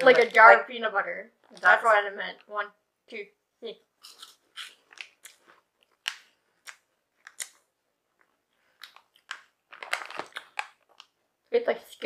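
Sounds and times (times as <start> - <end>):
crunching and chewing snack: 4.0 - 7.6, 8.2 - 11.2.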